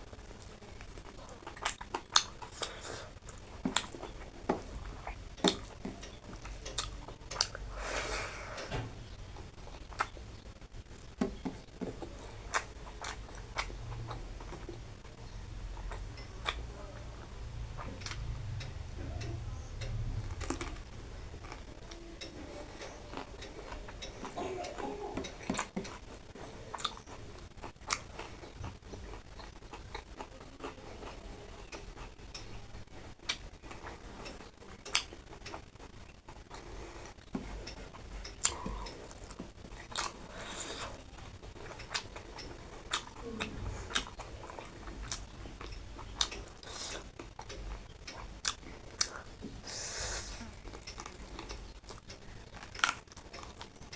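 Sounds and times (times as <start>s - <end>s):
person chewing: 0.0s - 8.7s, 9.3s - 53.9s
low steady hum: 0.0s - 53.9s.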